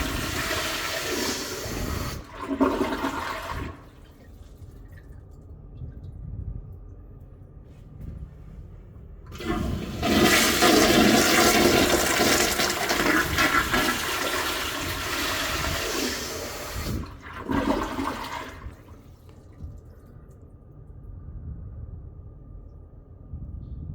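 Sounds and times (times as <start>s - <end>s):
toilet flushing: 0.0s - 5.2s, 9.3s - 19.4s.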